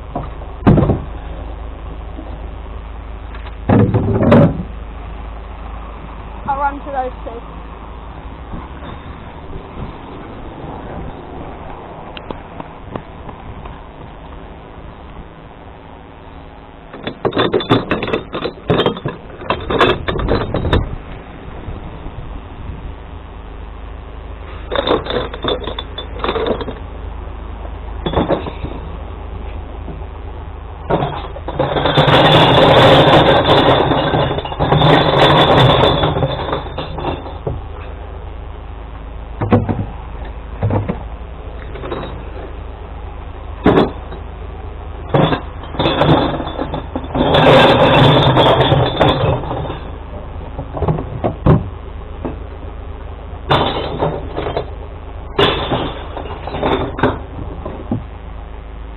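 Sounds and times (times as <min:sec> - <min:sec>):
knocks and clunks: 0:00.0 - 0:01.3, 0:03.3 - 0:04.8, 0:08.4 - 0:14.5, 0:16.9 - 0:21.3, 0:24.6 - 0:26.9, 0:27.6 - 0:30.1, 0:30.8 - 0:38.0, 0:39.4 - 0:42.6, 0:43.5 - 0:44.3, 0:45.0 - 0:52.5, 0:53.4 - 0:58.2
truck engine humming: 0:00.0 - 0:58.9
loud noisy glass crashing: 0:30.9 - 0:37.6, 0:45.1 - 0:50.2, 0:53.5 - 0:57.9.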